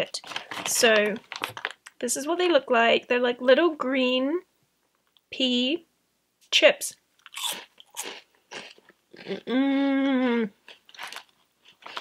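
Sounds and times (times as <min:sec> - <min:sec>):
crunchy chewing of a crisp: 0:07.2 - 0:09.6, 0:10.6 - 0:12.0
person humming mmm: 0:09.2 - 0:10.6.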